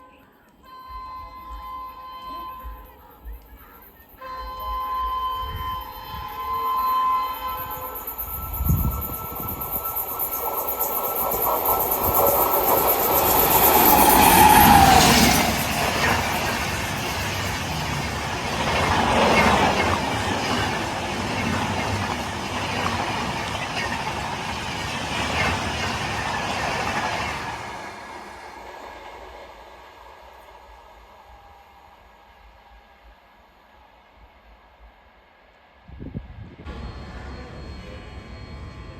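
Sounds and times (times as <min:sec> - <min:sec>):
express train passing: 0:00.0 - 0:38.9
wheels clattering on rails: 0:07.5 - 0:28.6.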